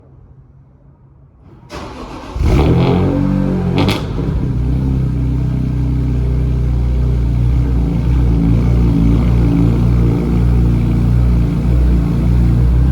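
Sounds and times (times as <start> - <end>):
car engine revving and idling: 1.5 - 12.9
starter motor cranking: 1.7 - 2.8.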